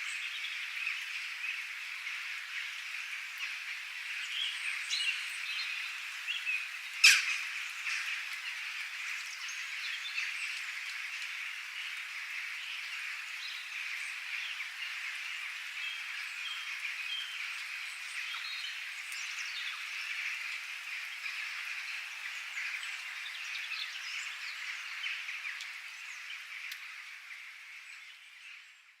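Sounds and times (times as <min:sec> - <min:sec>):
birds chirping and calling: 0:07.0 - 0:08.2.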